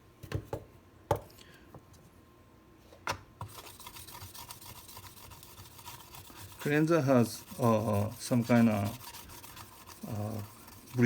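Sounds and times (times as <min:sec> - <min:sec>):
scrubbing knife blade: 0:03.5 - 0:11.0.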